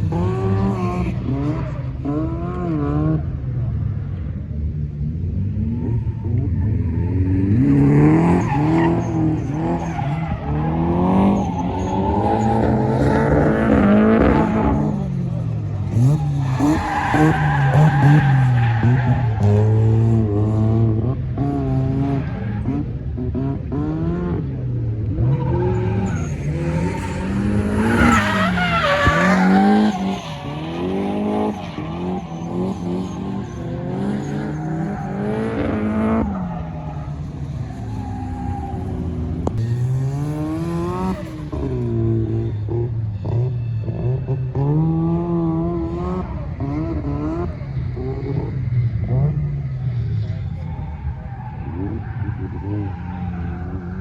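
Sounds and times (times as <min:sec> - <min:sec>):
car engine revving: 0:00.0 - 0:54.0
tyres squealing: 0:25.3 - 0:35.4.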